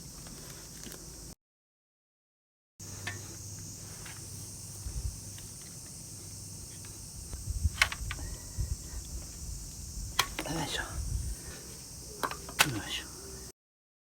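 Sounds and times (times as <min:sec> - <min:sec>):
high-pitched hiss: 0:02.8 - 0:13.5
tools clicking and knocking: 0:12.2 - 0:12.8.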